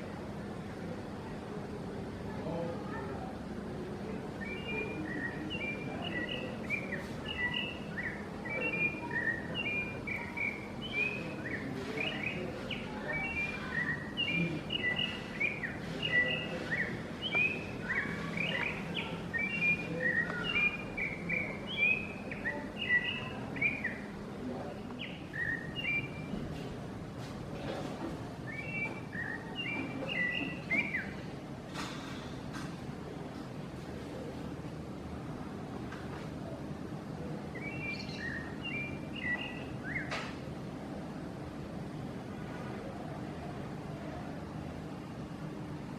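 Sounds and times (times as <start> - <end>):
bird singing whistled notes: 4.4 - 24.1, 25.0 - 26.4, 28.5 - 31.3, 37.5 - 40.2.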